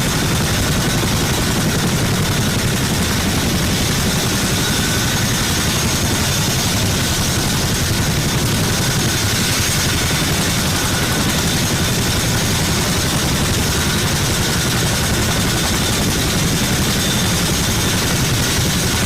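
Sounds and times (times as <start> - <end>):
helicopter rotor beat: 0.0 - 19.0
turbine whine: 0.0 - 19.0.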